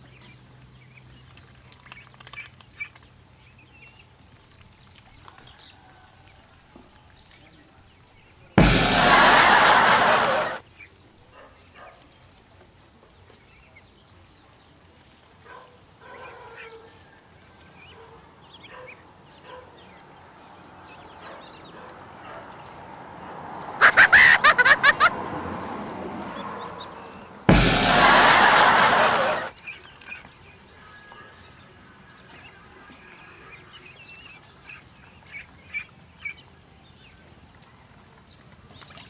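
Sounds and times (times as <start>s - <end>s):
loud rush of noise: 8.6s - 10.6s, 27.5s - 29.5s.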